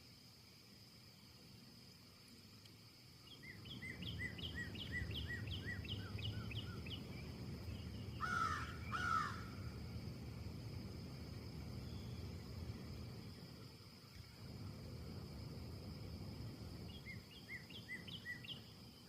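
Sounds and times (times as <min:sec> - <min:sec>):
wind in trees: 0:00.0 - 0:19.0
bird chirping: 0:03.2 - 0:09.5, 0:16.9 - 0:19.0
crow cawing: 0:08.2 - 0:09.6.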